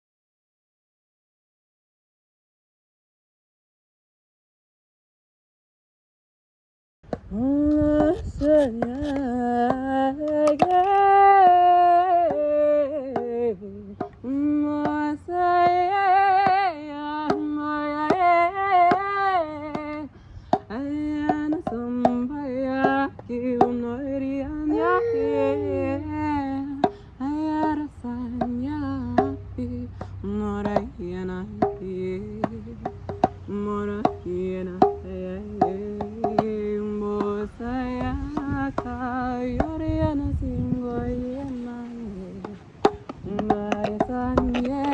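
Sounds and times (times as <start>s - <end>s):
woman chanting wordless syllables: 24.4s - 26.7s, 43.3s - 44.9s.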